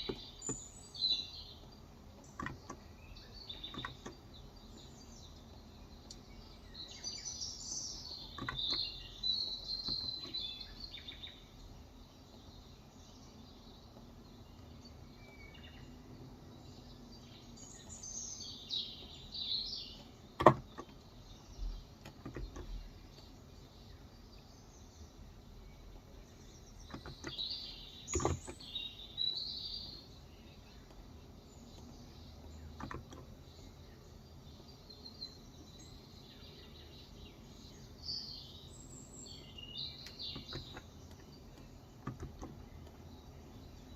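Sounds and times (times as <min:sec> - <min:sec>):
songbird chirping: 0:00.0 - 0:43.9
sharp clicks: 0:03.5 - 0:04.4.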